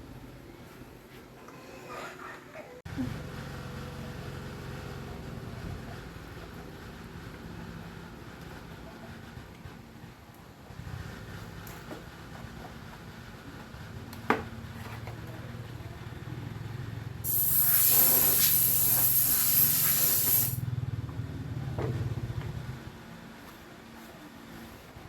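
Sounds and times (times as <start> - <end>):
loud spray hiss: 17.3 - 20.6.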